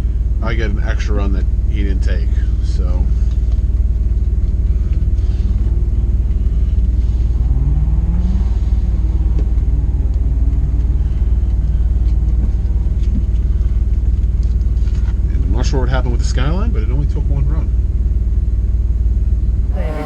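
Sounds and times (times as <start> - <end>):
car engine revving: 2.8 - 15.8, 19.6 - 20.0.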